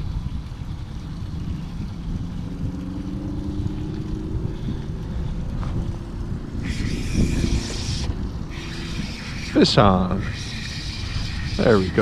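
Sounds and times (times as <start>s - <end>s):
wind rumbling on microphone: 0.0s - 12.0s
burst of hiss: 6.6s - 12.0s.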